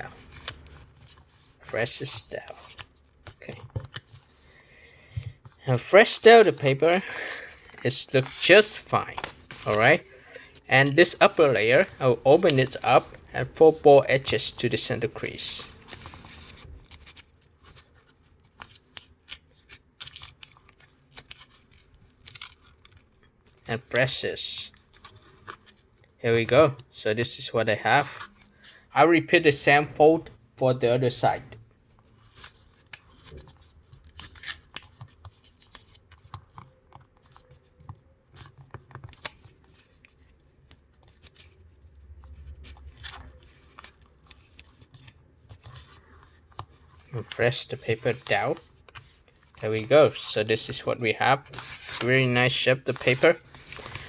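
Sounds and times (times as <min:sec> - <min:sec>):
paper crinkling and rustling: 0:00.0 - 0:04.4, 0:07.5 - 0:10.2, 0:14.2 - 0:23.9, 0:24.7 - 0:26.0, 0:31.9 - 0:54.0.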